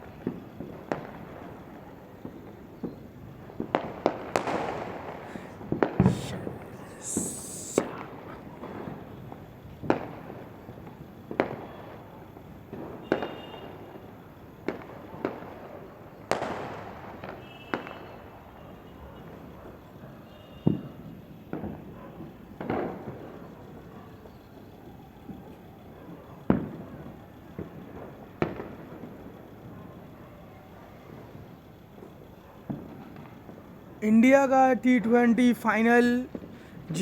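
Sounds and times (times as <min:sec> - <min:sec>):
brief hissing burst: 0:05.3 - 0:07.9.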